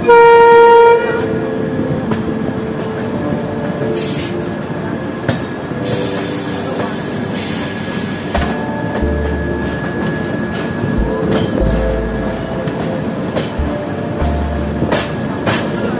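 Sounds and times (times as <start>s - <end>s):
train wheels rumbling on track: 5.3s - 15.9s.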